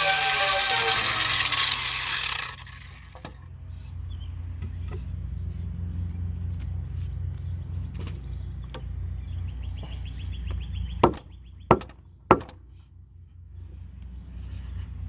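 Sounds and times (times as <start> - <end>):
grinder sanding wood: 0.0 - 3.1.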